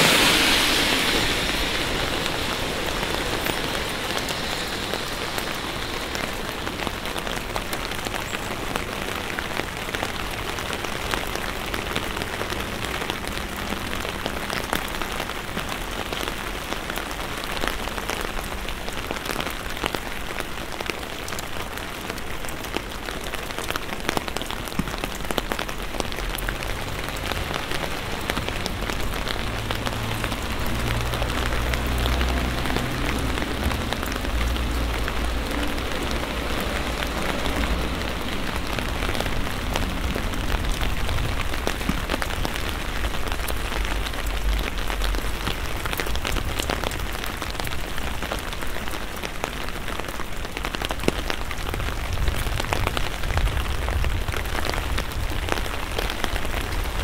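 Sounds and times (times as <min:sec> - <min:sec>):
low rumble: 0:00.0 - 0:07.6
rain hissing on a wet street: 0:00.0 - 0:57.0.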